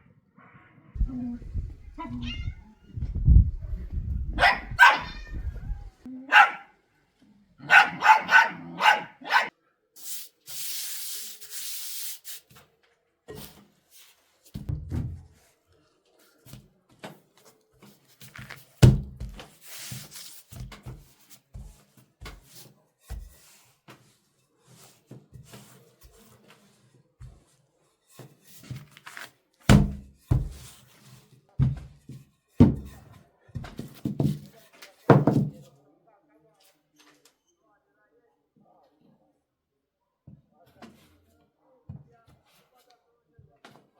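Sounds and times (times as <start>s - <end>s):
dog barking: 4.3s - 5.2s, 6.3s - 6.8s, 7.6s - 9.5s.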